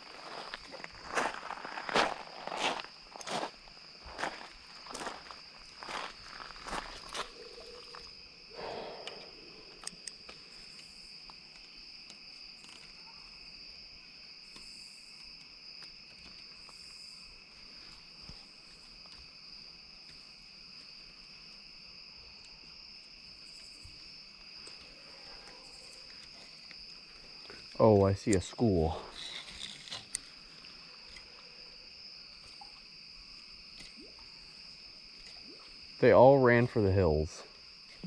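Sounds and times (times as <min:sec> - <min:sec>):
insects trilling: 0:00.0 - 0:38.0
brief rustle: 0:29.0 - 0:30.3.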